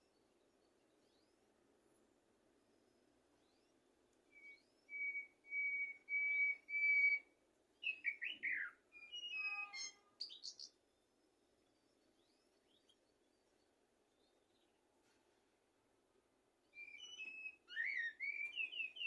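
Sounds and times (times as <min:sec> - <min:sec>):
blackbird singing: 0:02.9 - 0:14.7, 0:16.6 - 0:19.0.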